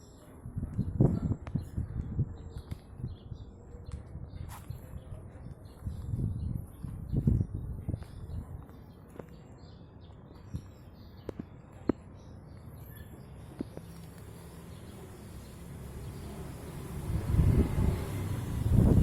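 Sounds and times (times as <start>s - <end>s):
motorcycle engine idling and revving: 13.6s - 19.0s.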